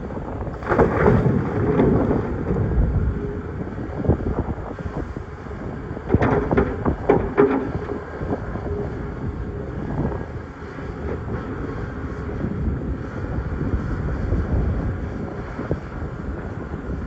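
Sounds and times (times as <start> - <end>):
rocks knocking against bucket: 6.1 - 8.0.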